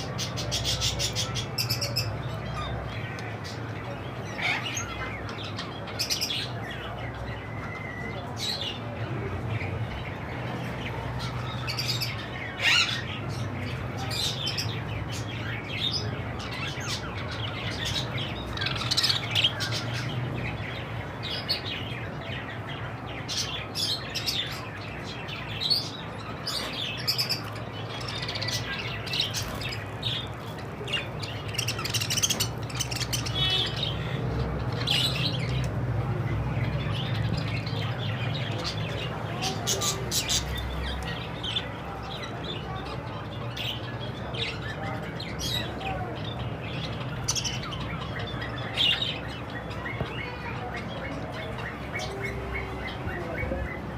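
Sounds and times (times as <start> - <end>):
budgerigars chirping and squawking: 0.0 - 53.9.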